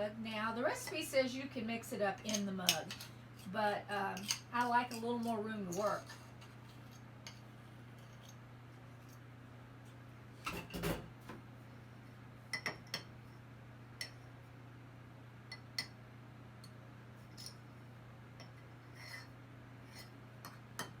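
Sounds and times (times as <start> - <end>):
utensil clinking against a bowl: 4.2 - 6.2.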